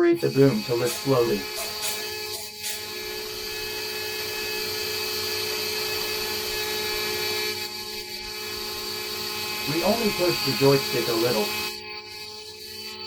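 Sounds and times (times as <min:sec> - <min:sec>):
hydraulic pump whining: 0:00.2 - 0:04.9, 0:09.6 - 0:11.6.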